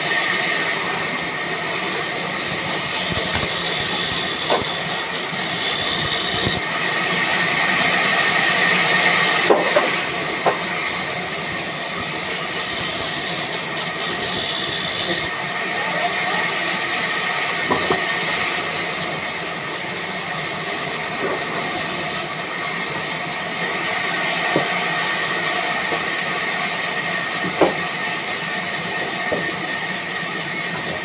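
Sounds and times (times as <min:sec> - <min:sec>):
band saw hissing and whining: 0:00.0 - 0:31.0.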